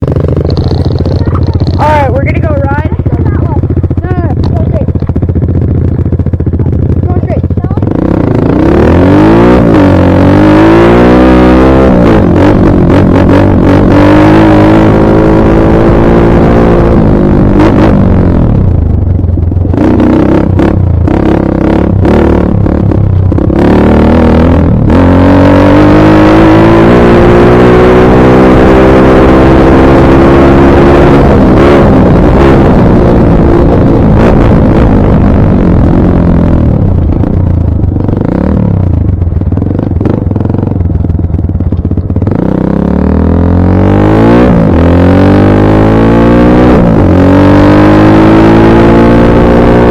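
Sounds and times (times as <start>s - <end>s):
dirt bike engine revving: 0.0s - 18.7s, 19.3s - 49.9s
knocks and clatter: 0.3s - 1.8s.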